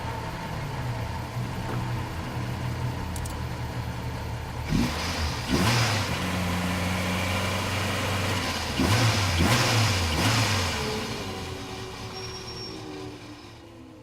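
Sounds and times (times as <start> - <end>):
car engine running: 0.0 - 12.2.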